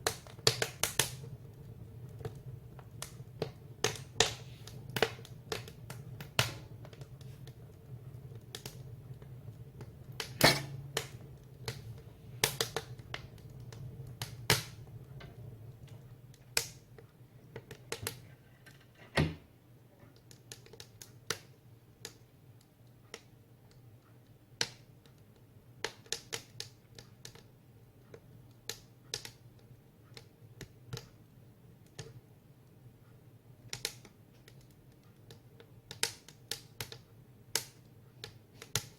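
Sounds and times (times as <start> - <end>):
firewood crackling and popping: 0.0 - 19.0, 20.1 - 31.2, 33.6 - 38.9
low rumble of fire: 0.0 - 19.0.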